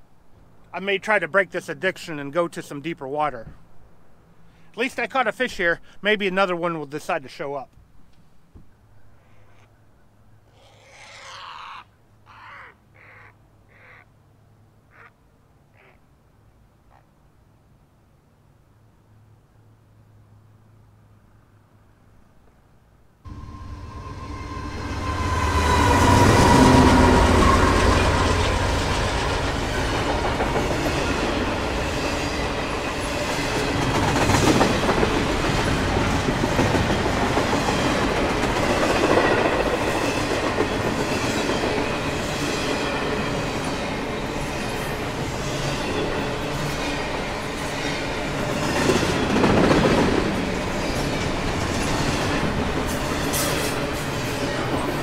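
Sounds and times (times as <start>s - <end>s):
freight train cars rumbling on rails: 23.3s - 55.0s.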